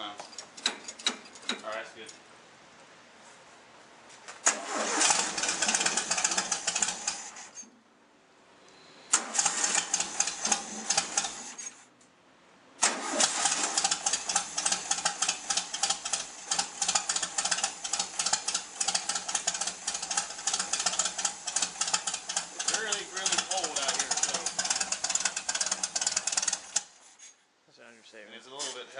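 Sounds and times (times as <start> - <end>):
car engine turning over: 4.4 - 7.6, 9.1 - 11.8, 12.8 - 27.0
car engine running: 4.8 - 7.4, 9.4 - 11.6, 13.3 - 26.8.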